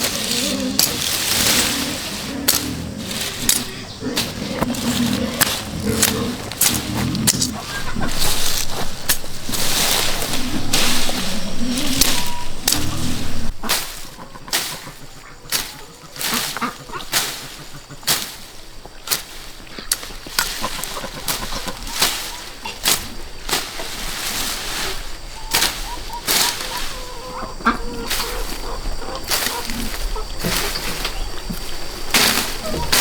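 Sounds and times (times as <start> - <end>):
hand tool chopping: 0.0 - 14.8.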